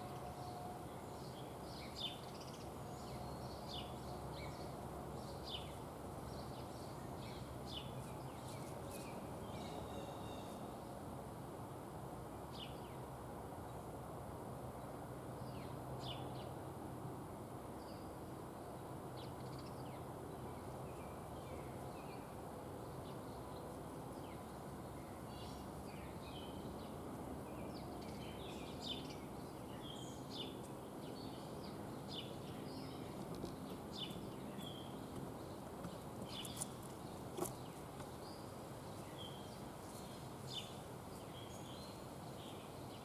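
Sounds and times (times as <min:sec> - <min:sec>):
small birds chirping: 0:24.2 - 0:43.0.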